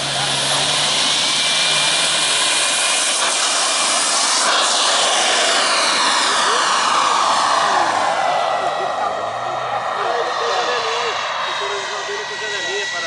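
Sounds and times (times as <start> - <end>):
model jet turbine running: 0.0 - 13.0.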